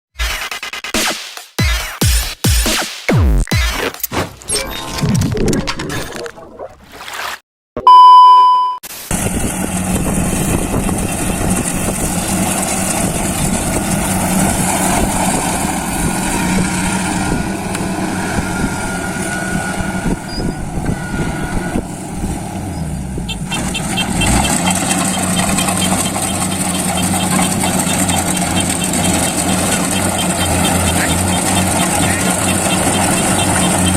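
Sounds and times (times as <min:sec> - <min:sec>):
loud beep-like tone: 0:07.8 - 0:08.8, 0:23.3 - 0:33.9
combine harvester engine hum: 0:08.9 - 0:33.9
faint rapid ticking: 0:24.4 - 0:33.9.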